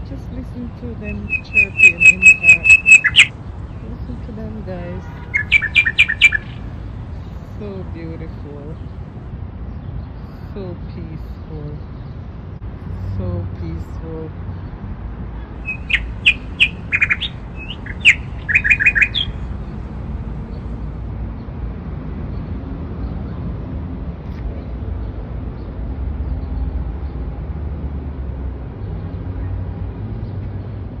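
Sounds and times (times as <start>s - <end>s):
songbird chirping: 0.0s - 9.3s, 15.6s - 21.6s
low outdoor background noise: 0.0s - 31.0s.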